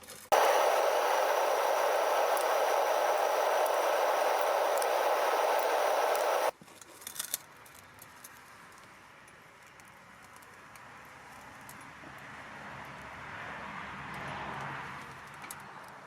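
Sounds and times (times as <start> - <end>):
furnace burner roaring: 0.3 - 6.5.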